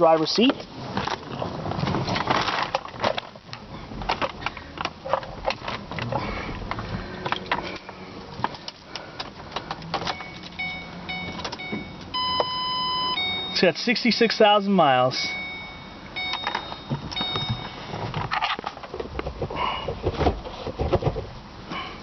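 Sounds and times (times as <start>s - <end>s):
clicks and rattles of handling: 0.5s - 10.6s
car warning chime beeping: 10.0s - 18.0s.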